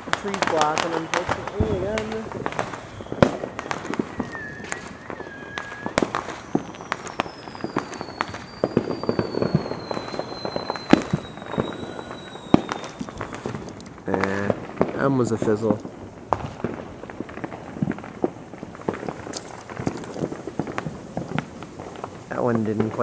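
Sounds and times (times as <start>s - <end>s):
fireworks bangs and crackling: 0.0s - 23.0s
high falling whistle: 2.7s - 13.5s.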